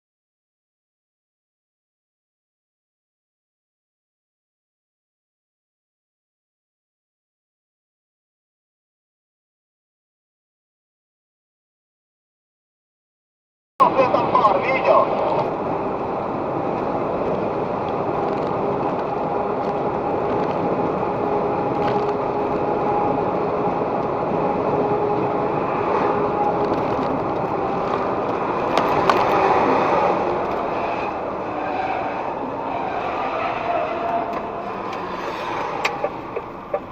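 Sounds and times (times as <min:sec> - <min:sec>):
car road and engine noise: 0:13.8 - 0:36.9.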